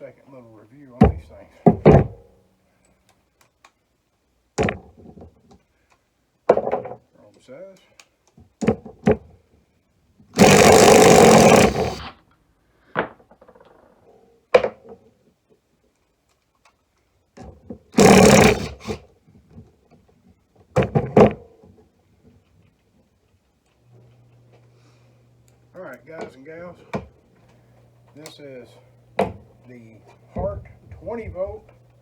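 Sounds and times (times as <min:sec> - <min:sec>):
impact driver running: 0:10.4 - 0:12.1, 0:18.0 - 0:19.0.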